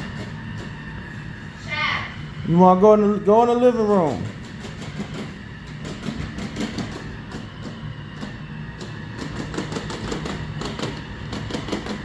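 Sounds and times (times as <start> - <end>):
rapid irregular clicking: 4.2 - 12.0.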